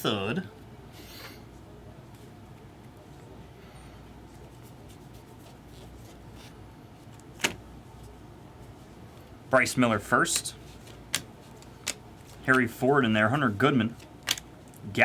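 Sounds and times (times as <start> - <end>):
low room hum: 0.0 - 15.0
trading cards rustling and sliding: 10.3 - 12.8.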